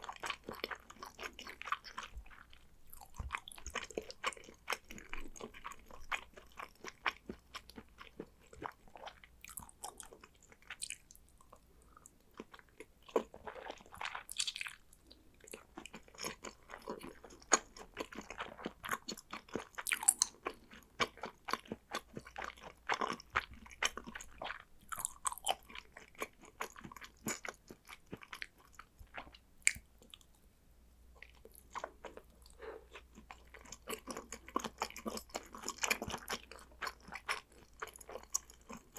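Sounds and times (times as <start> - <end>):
wet chewing mouth clicks: 15.5 - 30.4.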